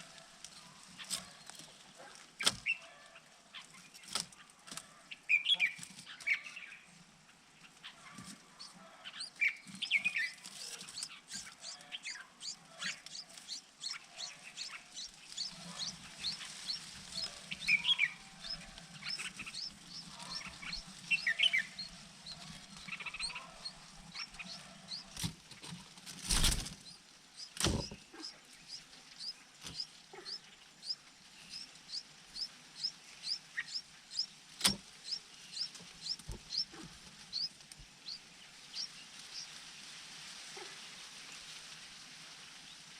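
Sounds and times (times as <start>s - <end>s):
birds chirping: 7.6s - 39.5s
lower bird calls: 8.6s - 25.2s.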